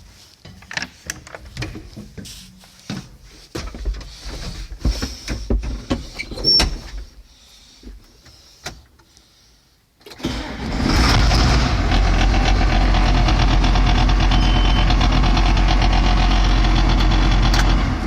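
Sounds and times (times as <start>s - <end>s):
diesel tractor engine starting: 10.0s - 18.0s.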